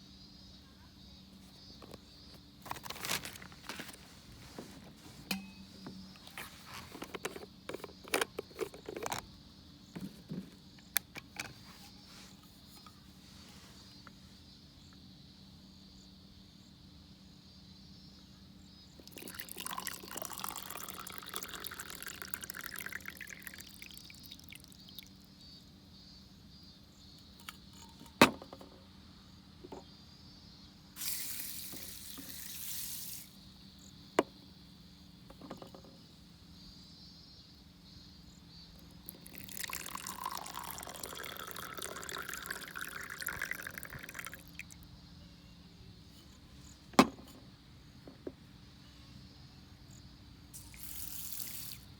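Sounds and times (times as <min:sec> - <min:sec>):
water pouring into container: 0:19.0 - 0:24.9, 0:39.2 - 0:44.6.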